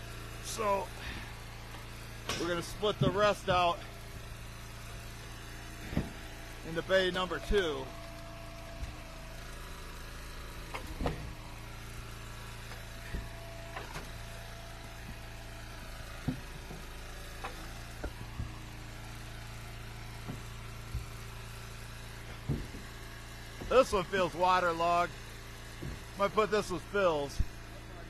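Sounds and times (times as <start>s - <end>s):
wood splitter engine running: 0.0s - 28.0s.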